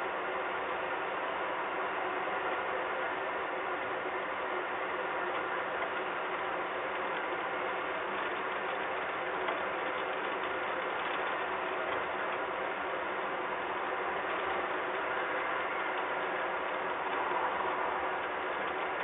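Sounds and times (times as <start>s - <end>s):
rain pattering: 4.4s - 19.0s.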